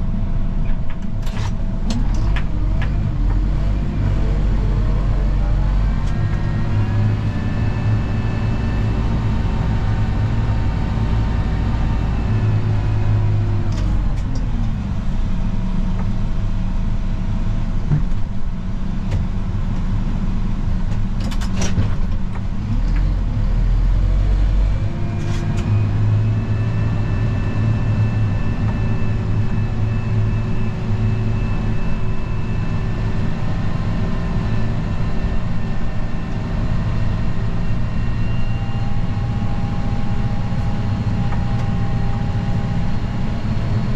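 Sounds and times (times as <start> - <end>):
vehicle engine running: 0.0 - 43.9.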